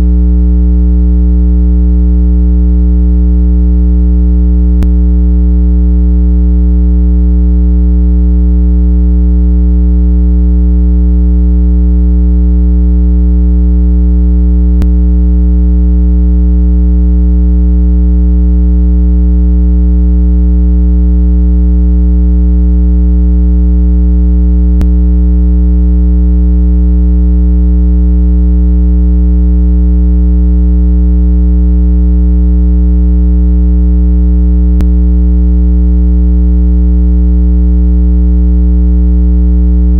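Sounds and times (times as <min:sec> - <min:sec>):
low electronic tone: 0:04.7 - 0:06.0, 0:14.6 - 0:15.0, 0:24.7 - 0:25.0.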